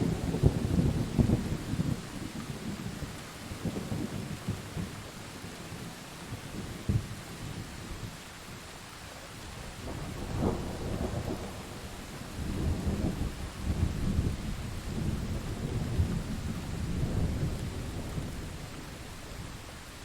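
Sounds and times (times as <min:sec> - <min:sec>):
rolling thunder rumbling: 0:00.0 - 0:05.0, 0:09.8 - 0:19.6
steady rain: 0:00.0 - 0:20.0.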